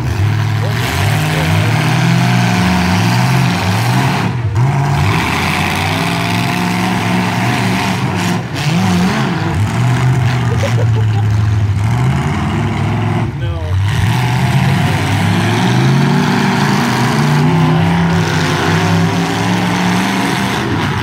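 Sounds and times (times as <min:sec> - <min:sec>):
truck engines revving: 0:00.0 - 0:21.0.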